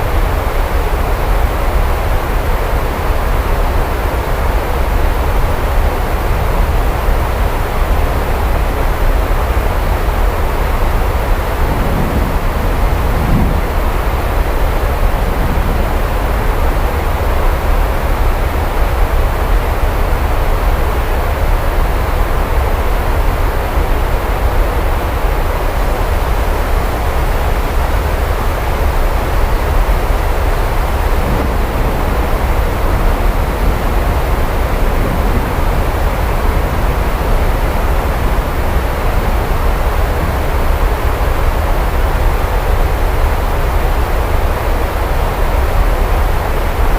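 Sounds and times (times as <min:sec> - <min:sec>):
heavy rainfall: 0:00.0 - 0:46.9
deep low rumble: 0:10.4 - 0:18.0, 0:29.4 - 0:41.3.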